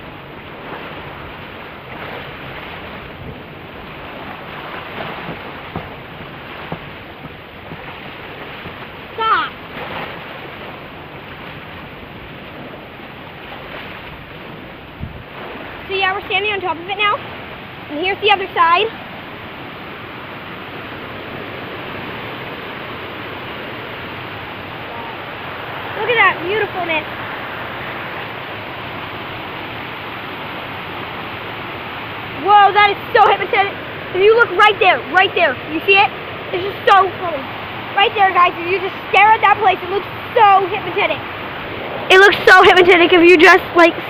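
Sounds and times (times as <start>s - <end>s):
water rushing down waterfall: 0.0s - 44.0s
faint knocks: 5.0s - 7.9s, 8.6s - 8.9s.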